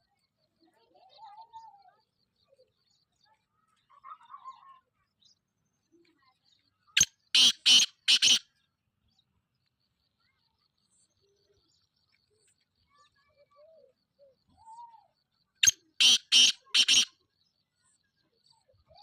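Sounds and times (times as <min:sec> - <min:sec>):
bird harsh grating call: 0:07.4 - 0:08.4, 0:15.6 - 0:17.1.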